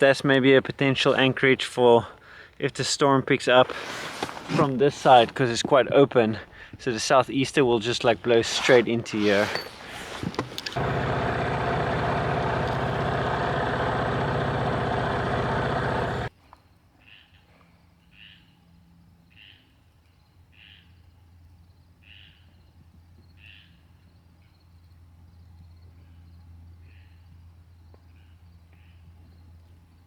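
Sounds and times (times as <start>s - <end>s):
outboard motor running: 9.7s - 16.3s
low hum: 10.8s - 16.3s.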